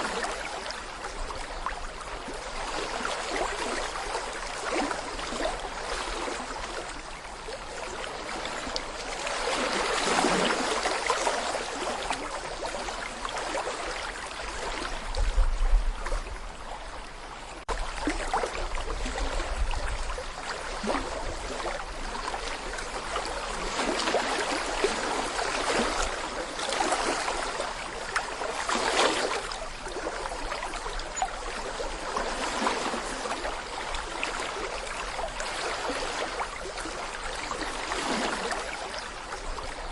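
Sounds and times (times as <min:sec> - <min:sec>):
brook babbling over stones: 0:00.0 - 0:39.9.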